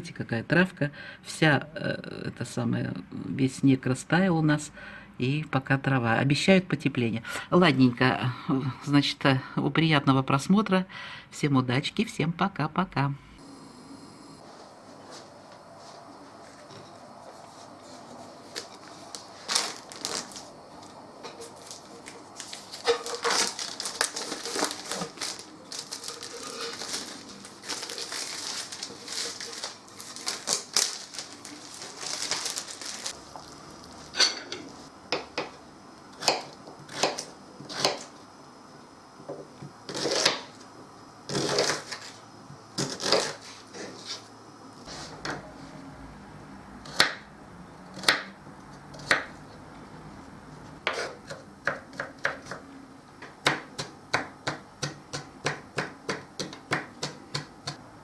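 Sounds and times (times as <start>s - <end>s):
dense crackling rustle: 17.5s - 33.9s.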